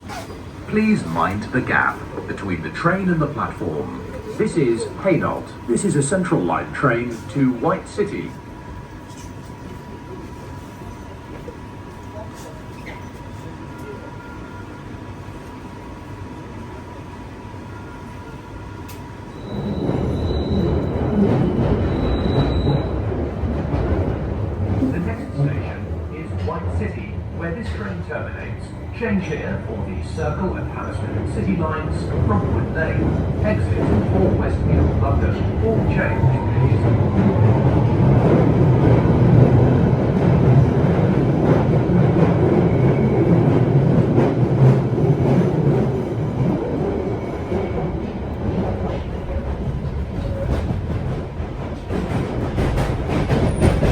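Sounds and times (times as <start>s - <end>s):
train running rumble: 18.9s - 53.9s.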